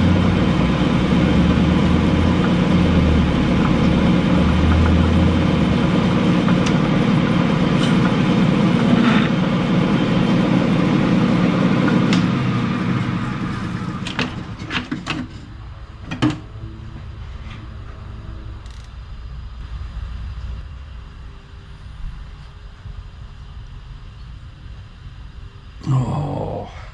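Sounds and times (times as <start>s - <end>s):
metal lathe running: 0.0s - 15.5s.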